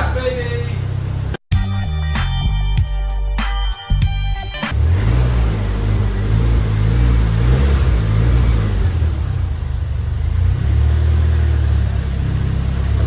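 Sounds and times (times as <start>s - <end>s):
car engine running: 0.0s - 1.4s, 4.7s - 13.0s.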